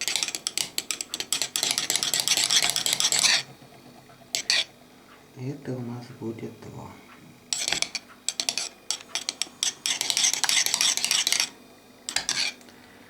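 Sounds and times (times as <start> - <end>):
spoon scraping and clinking in cup: 0.0 - 3.5, 7.5 - 12.6.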